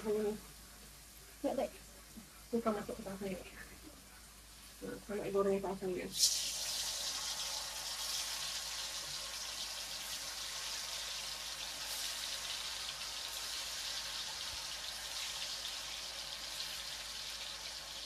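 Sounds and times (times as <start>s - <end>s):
paste sizzling in hot oil: 4.1s - 18.0s.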